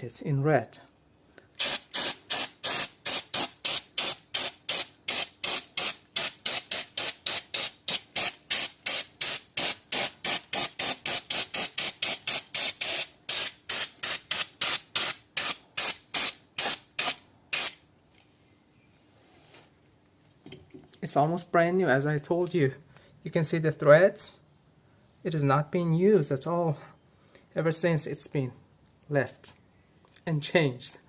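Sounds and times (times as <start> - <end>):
spray can hissing in bursts: 1.6 - 17.8.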